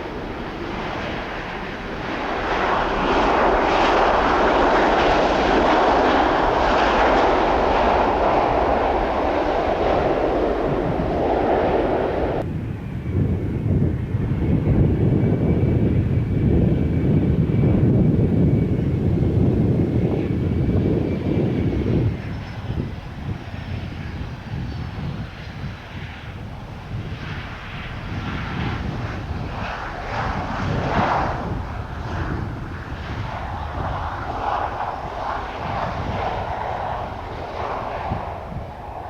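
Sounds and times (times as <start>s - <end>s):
jet engines rumbling: 0.0s - 39.0s.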